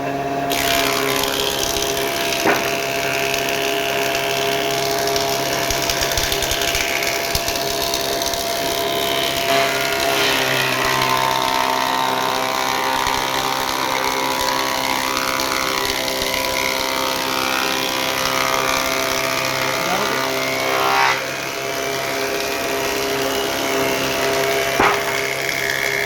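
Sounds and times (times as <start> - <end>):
power tool motor humming: 0.4 - 26.0.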